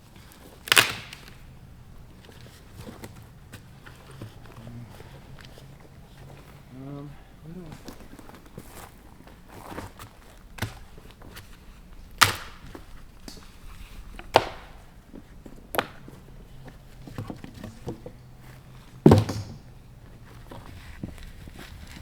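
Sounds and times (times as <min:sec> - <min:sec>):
hard knocks on wood: 0:19.0 - 0:19.7.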